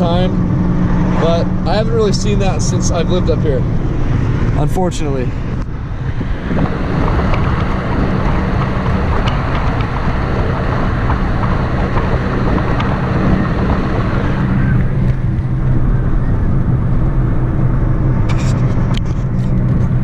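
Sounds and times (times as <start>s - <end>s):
car engine and road hum: 0.0s - 20.0s.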